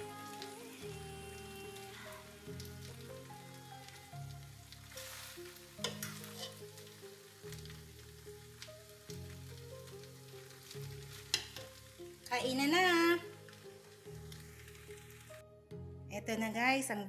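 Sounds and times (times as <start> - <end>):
background music: 0.0 - 17.0
light sizzle: 0.0 - 17.0
fork scraping and clinking in pot: 5.8 - 6.6.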